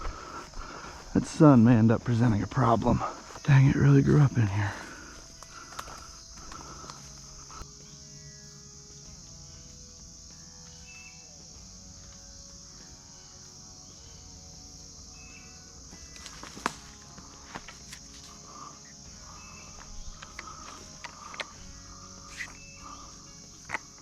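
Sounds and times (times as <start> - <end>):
footsteps crunching through dry brush: 0.0 - 3.9, 15.2 - 24.0
high-pitched insect chorus: 0.0 - 24.0
twigs snapping: 5.3 - 7.6, 15.9 - 18.5, 19.8 - 22.6.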